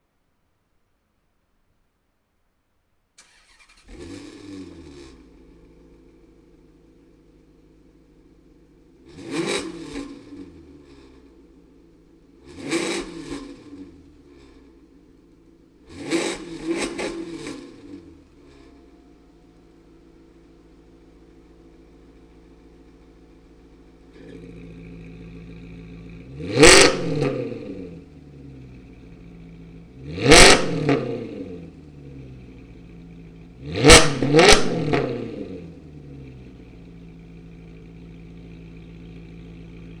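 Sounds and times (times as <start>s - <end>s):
car engine idling: 3.2s - 40.0s
engine revving throttle blips: 15.8s - 40.0s.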